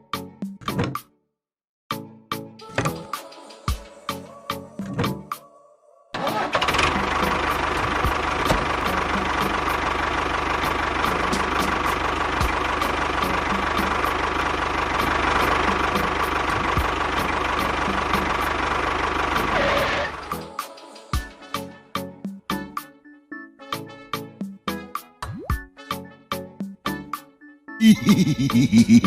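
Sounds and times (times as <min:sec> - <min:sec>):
engine running steadily: 0:06.2 - 0:20.6.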